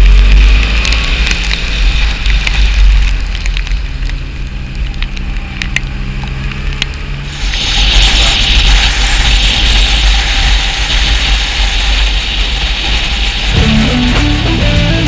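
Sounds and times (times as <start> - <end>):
raindrops ticking on microphone: 0.0 - 7.1
wind rumble on microphone: 0.0 - 15.0
motorcycle engine running: 11.4 - 15.0.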